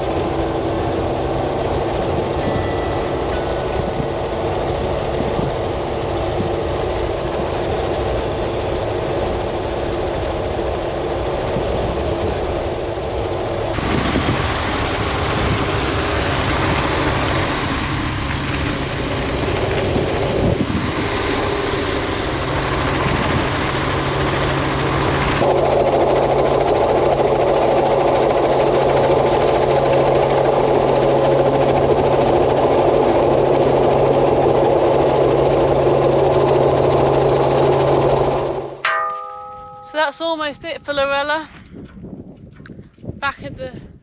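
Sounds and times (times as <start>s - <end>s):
steady low hum: 0.0s - 23.2s
engine running: 0.0s - 40.4s.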